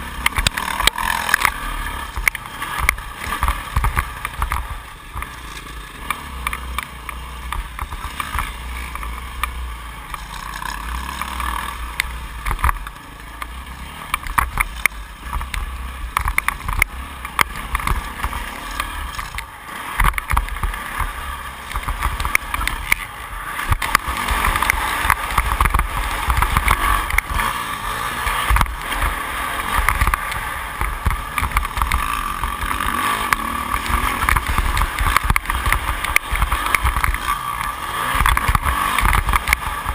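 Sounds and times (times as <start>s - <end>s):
motocross engine revving: 0.0s - 39.9s
bike knocking over track: 28.3s - 39.9s.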